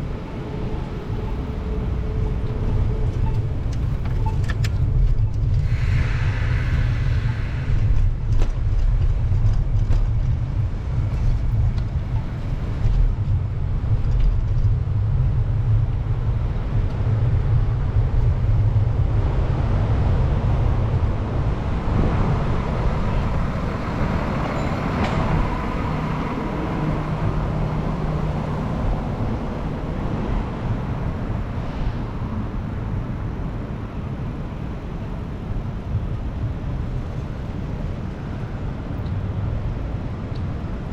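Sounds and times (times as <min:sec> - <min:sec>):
street traffic: 0:00.0 - 0:40.9
wind rumbling on microphone: 0:00.0 - 0:40.9
vehicle passing with high whine: 0:16.2 - 0:35.6.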